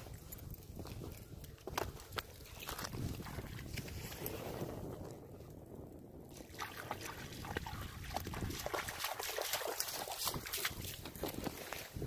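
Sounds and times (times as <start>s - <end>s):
dog splashing in shallow water: 6.3s - 12.0s.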